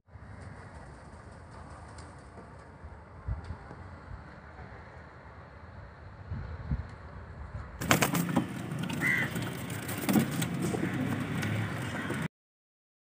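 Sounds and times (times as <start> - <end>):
pigeons cooing: 7.8 - 12.3.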